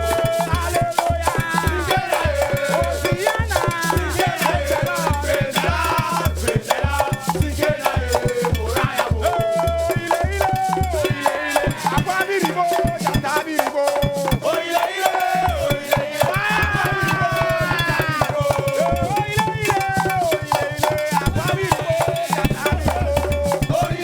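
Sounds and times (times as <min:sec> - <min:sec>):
upbeat dance band music: 0:11.0 - 0:20.4.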